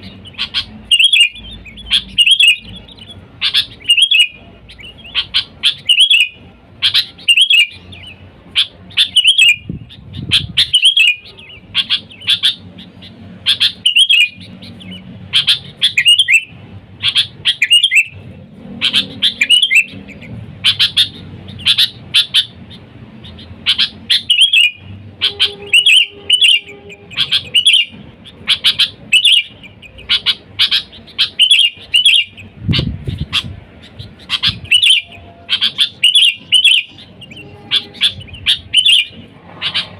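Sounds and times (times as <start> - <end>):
bulbul chirping: 0.0 - 39.9.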